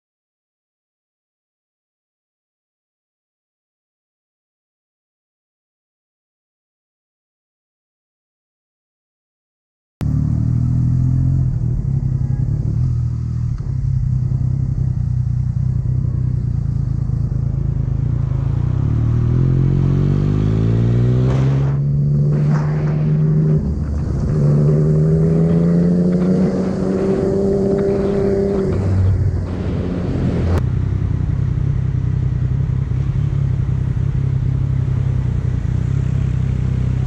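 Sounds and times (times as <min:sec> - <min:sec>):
motorcycle engine accelerating: 0:10.0 - 0:37.0.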